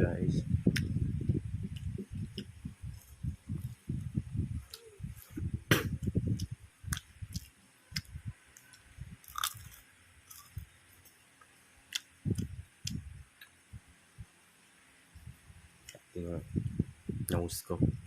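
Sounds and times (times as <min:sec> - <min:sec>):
chewing crispy fried food: 0:06.4 - 0:11.2.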